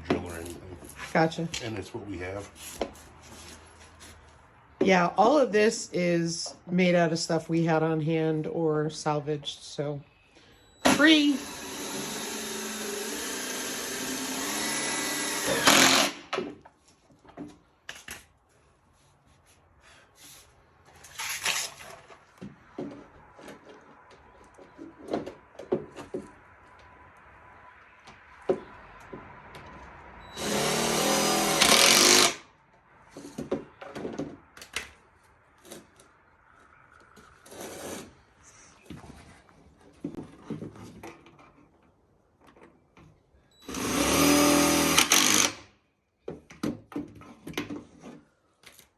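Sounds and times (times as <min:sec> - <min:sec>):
power drill driving screws: 0:10.8 - 0:16.3, 0:30.3 - 0:32.4, 0:43.6 - 0:45.6.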